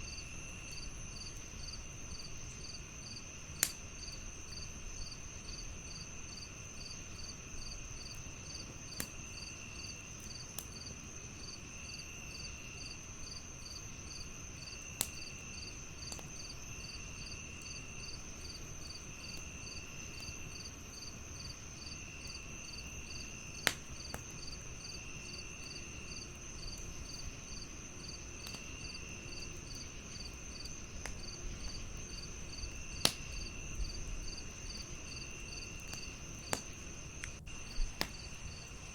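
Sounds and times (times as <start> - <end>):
crickets chirping: 0.0 - 38.9
lower insect trill: 0.0 - 38.9
wood fire hissing: 0.0 - 38.9
fire popping: 13.2 - 38.9.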